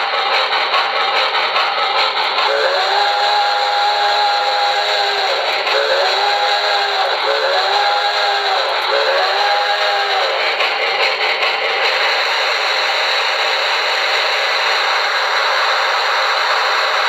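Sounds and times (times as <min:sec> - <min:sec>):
steam locomotive whistle: 0:02.4 - 0:10.6.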